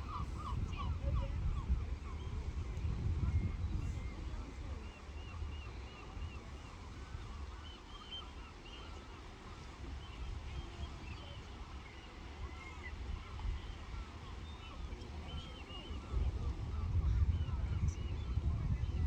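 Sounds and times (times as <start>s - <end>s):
wind on microphone: 0.0s - 5.5s, 14.9s - 19.0s.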